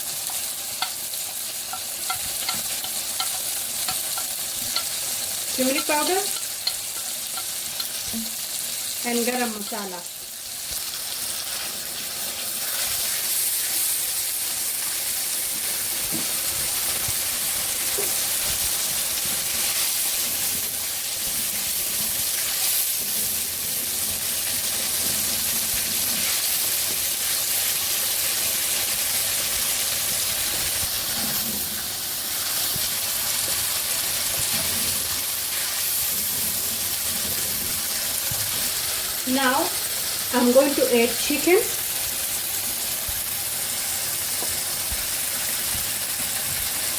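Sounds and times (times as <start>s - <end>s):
masala sizzling in a pan: 0.0s - 46.9s.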